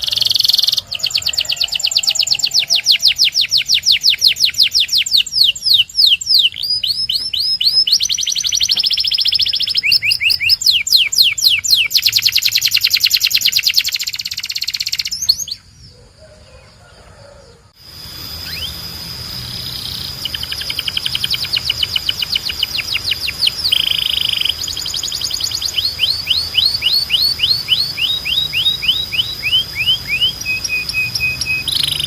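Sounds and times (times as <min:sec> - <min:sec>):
canary singing trills: 0:00.0 - 0:32.0.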